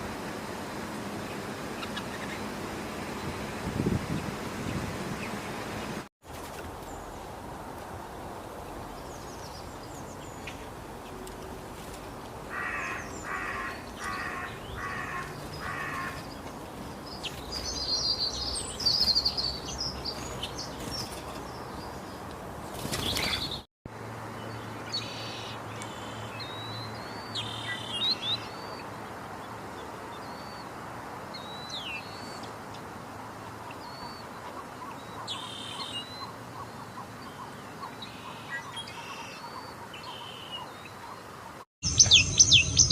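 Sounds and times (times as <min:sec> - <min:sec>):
wild birds calling: 0:00.0 - 0:06.0, 0:12.4 - 0:23.7, 0:24.5 - 0:29.2, 0:33.4 - 0:42.9
outdoor background: 0:00.0 - 0:42.9
high chirps and whistles: 0:41.8 - 0:42.9.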